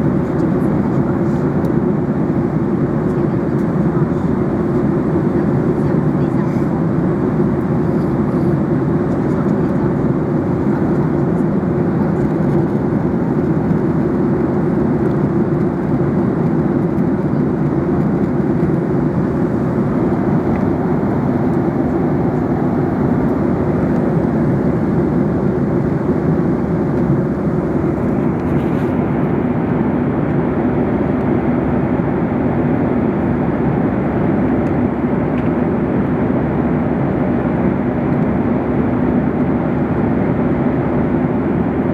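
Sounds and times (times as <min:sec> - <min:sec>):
airflow over fuselage: 0:00.0 - 0:30.4
jet engine rumble in cabin: 0:00.0 - 0:41.9.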